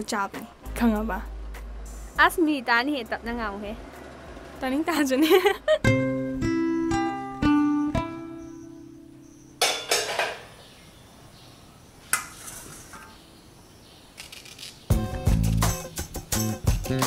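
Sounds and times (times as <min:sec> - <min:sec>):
plucked guitar notes: 0:05.8 - 0:09.2
dishes and utensils clinking: 0:09.6 - 0:10.6.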